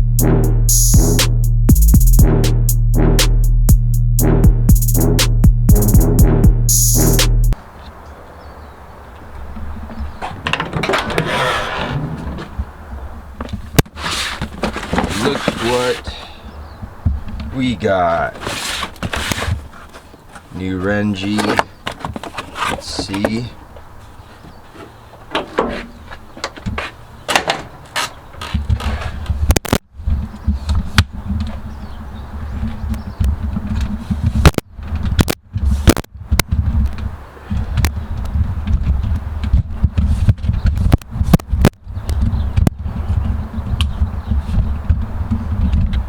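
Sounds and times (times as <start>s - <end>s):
low rumble: 0.0s - 7.6s
handling rustling: 13.5s - 16.2s, 18.3s - 27.0s.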